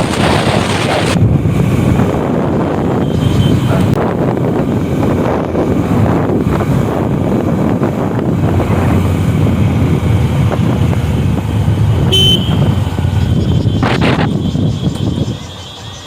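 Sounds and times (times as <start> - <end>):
motorcycle road noise: 0.0 - 16.0
wind buffeting: 0.0 - 16.0
short horn beep: 12.1 - 12.8.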